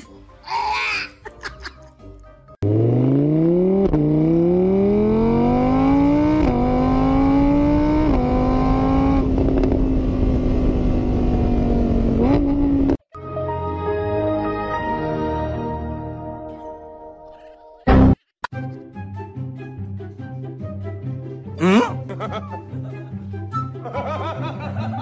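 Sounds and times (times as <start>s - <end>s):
car engine accelerating hard: 2.6s - 13.0s.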